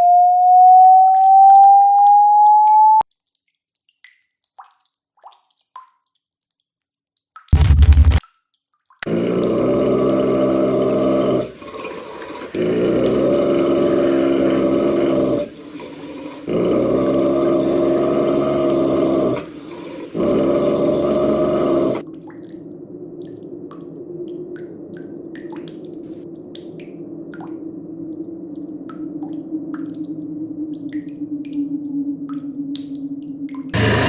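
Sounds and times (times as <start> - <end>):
water drips: 0.0 - 7.5, 22.0 - 33.8
deep rough growl: 9.1 - 15.6, 16.4 - 22.0, 33.7 - 34.0.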